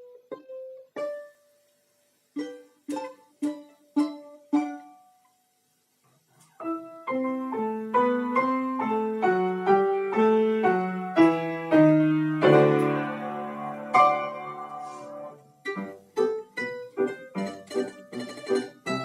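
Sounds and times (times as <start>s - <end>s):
piano chords over bass: 6.8s - 15.4s.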